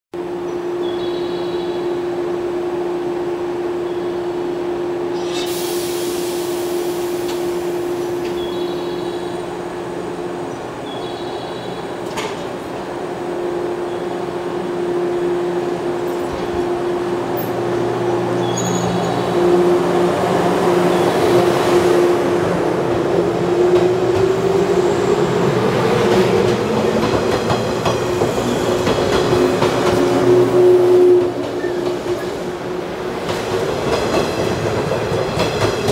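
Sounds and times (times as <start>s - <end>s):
air hiss: 5.2s - 8.0s.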